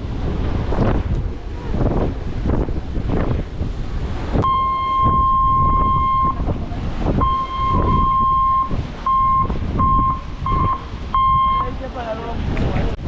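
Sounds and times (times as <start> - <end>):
wind buffeting microphone: 0.0 - 13.0
high-pitched beeping tone: 4.4 - 6.4, 7.2 - 11.7.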